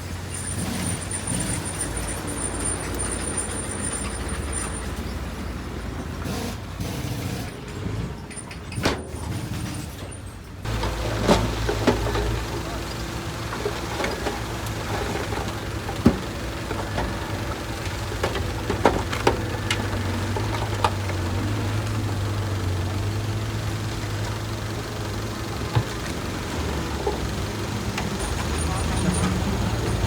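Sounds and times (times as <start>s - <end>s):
diesel engine running at low revs: 10.6s - 30.0s.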